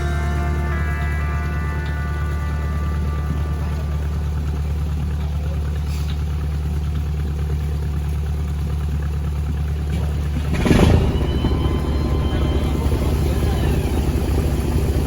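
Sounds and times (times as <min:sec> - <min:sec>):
boat engine droning: 0:00.0 - 0:15.0
loud rushing burst: 0:10.5 - 0:15.0.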